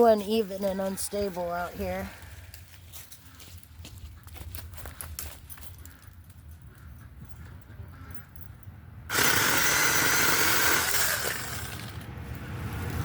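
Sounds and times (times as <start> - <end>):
mini chainsaw cutting branches: 9.1 - 12.2.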